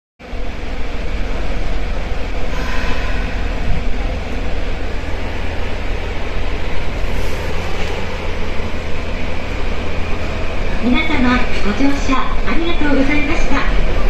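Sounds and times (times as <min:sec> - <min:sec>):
subway train rumbling in tunnel: 0:00.2 - 0:14.0.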